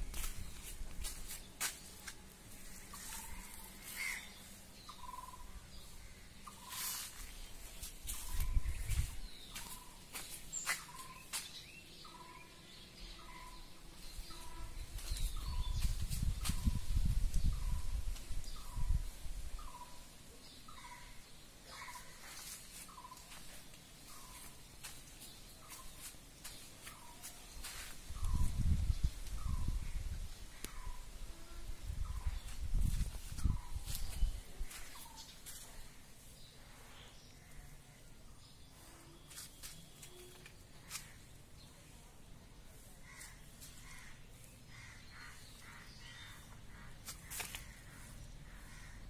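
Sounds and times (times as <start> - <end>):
faint bird calls: 2.8 - 7.2, 43.0 - 49.0
bird calling: 2.9 - 5.5.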